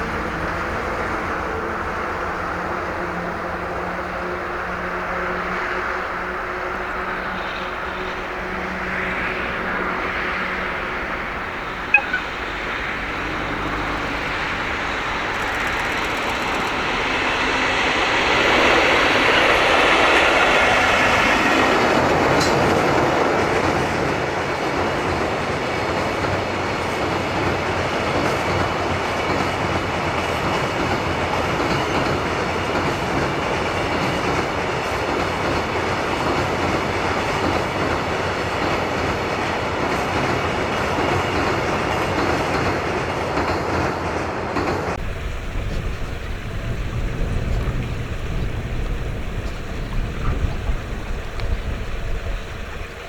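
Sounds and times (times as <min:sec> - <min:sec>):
freight train passing: 0:00.0 - 0:53.0
brief sharp sound: 0:11.9 - 0:12.6
wheels clattering over rail joints: 0:12.2 - 0:24.2.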